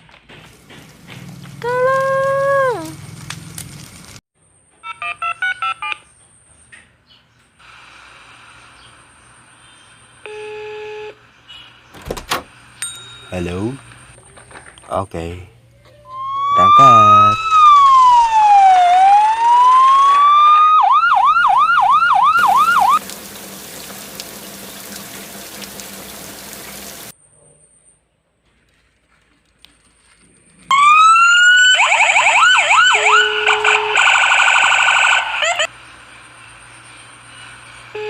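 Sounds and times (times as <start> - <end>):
emergency vehicle siren: 15.9 - 23.0, 30.7 - 38.0.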